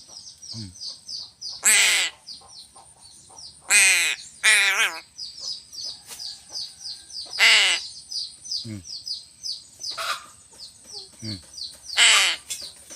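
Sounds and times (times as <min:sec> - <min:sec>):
crow cawing: 0:01.6 - 0:02.2, 0:03.7 - 0:05.0, 0:07.4 - 0:07.9, 0:12.0 - 0:12.5.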